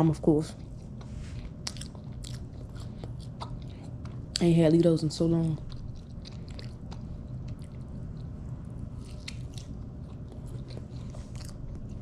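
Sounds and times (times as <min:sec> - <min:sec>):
steady low hum: 0:00.0 - 0:12.0
person chewing food: 0:00.5 - 0:04.4, 0:05.6 - 0:12.0.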